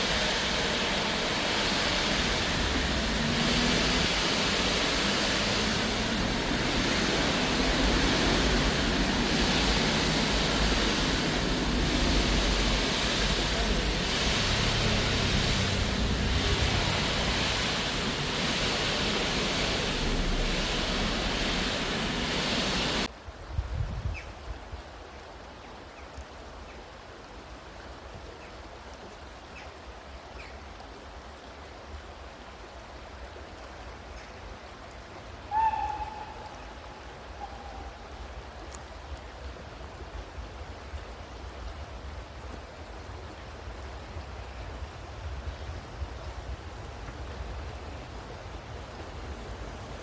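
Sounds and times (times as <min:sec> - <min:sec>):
distant steam locomotive whistle: 0:00.0 - 0:23.1, 0:35.4 - 0:38.5
loud rushing noise: 0:00.0 - 0:23.1
wind rumble on microphone: 0:00.0 - 0:24.8, 0:40.0 - 0:50.0.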